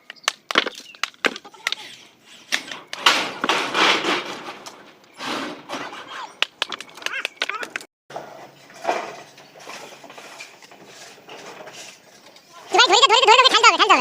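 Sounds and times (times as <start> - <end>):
sharp knocks and clatter: 0.2 - 1.8, 2.5 - 12.4
harsh scraping: 1.6 - 6.4, 8.1 - 14.0.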